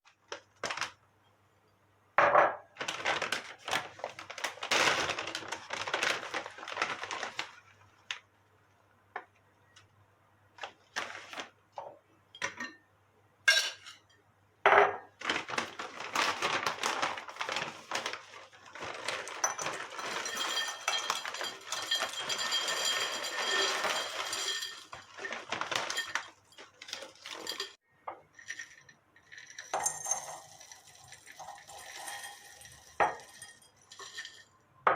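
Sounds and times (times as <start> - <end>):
dishes and utensils clinking: 13.5 - 15.0, 19.0 - 34.6
continuous clattering: 15.3 - 27.8.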